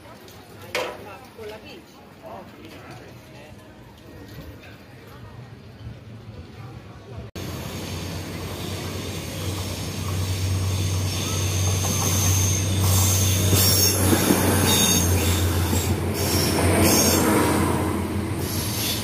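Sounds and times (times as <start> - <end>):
passenger train passing: 5.4 - 19.0
metallic wheel squeals: 7.8 - 17.5.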